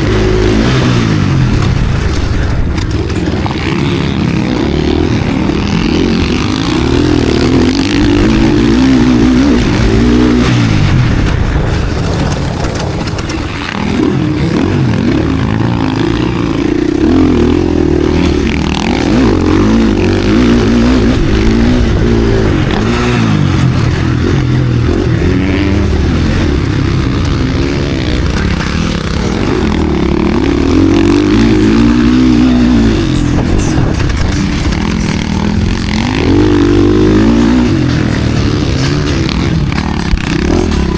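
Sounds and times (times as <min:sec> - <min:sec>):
motocross engine revving: 0:00.0 - 0:40.9.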